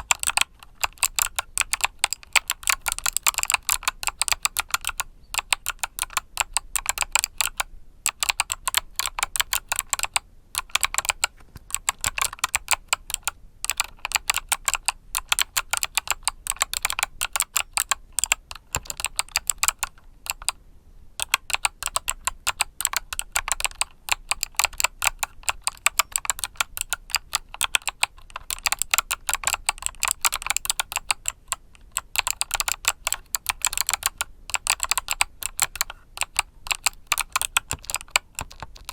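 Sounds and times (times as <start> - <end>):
typing on mechanical keyboard: 0.0 - 20.6, 21.2 - 38.9.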